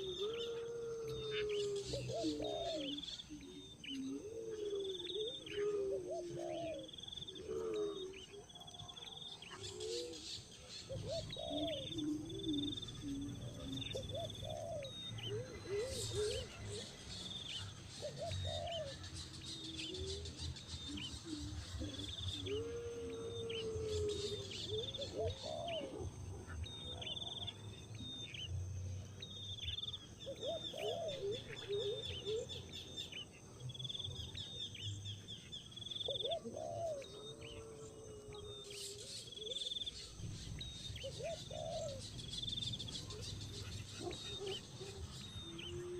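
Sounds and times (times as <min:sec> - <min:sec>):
rising and falling bird calls: 0:00.0 - 0:28.5, 0:29.2 - 0:45.9.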